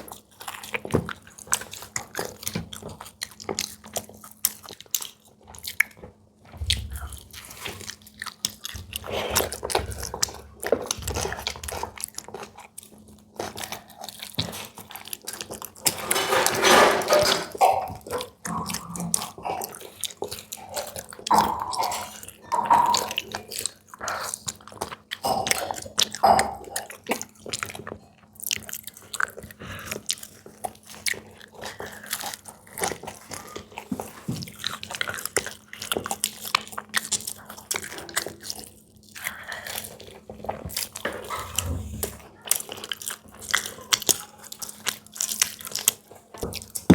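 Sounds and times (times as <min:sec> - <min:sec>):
biting and crunching food: 0:00.0 - 0:46.9
wet mouth sounds: 0:17.6 - 0:27.6.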